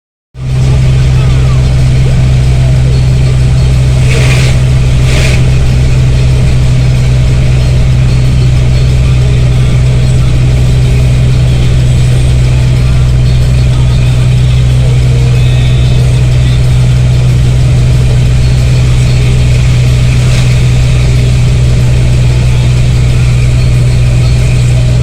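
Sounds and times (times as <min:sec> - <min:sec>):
bus engine droning: 0:00.3 - 0:25.0
short hisses: 0:03.9 - 0:05.6.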